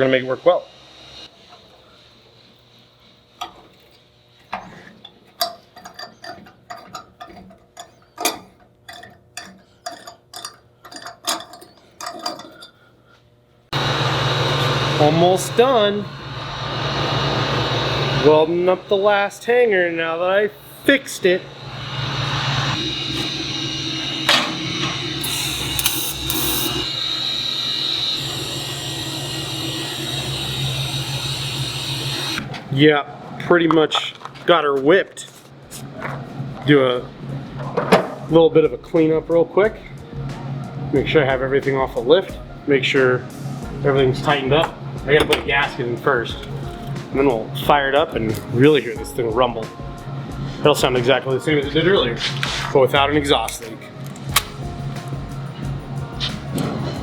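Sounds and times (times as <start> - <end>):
metallic clinks of hand tools: 5.4 - 12.8
arc welding buzzing hiss: 13.7 - 32.4.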